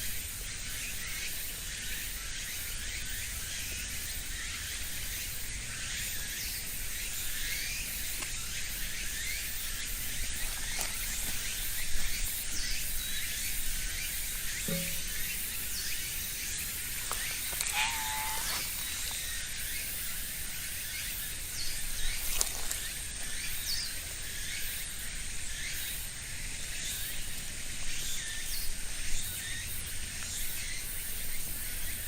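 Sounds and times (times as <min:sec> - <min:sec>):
steady high-pitched hiss: 0:00.0 - 0:32.0
thin constant whine: 0:04.1 - 0:31.0
bird chirps: 0:14.7 - 0:15.2.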